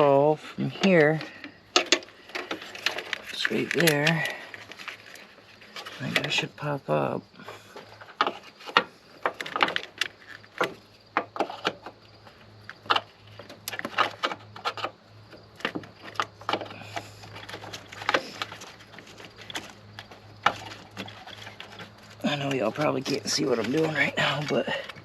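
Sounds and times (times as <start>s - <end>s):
hands clicking and scraping plastic trim: 0.8s - 6.4s, 12.7s - 25.0s.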